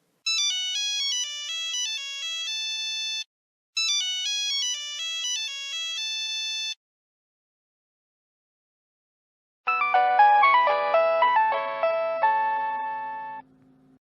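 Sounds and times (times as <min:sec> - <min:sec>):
phone ringtone melody: 0:00.3 - 0:06.8, 0:09.7 - 0:13.4.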